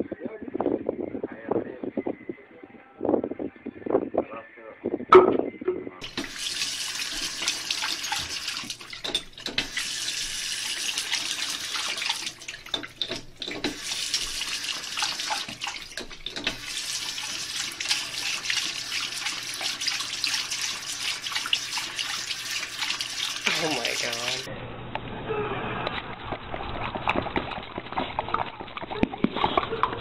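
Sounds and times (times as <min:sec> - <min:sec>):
faucet water splashing: 0:06.0 - 0:24.5.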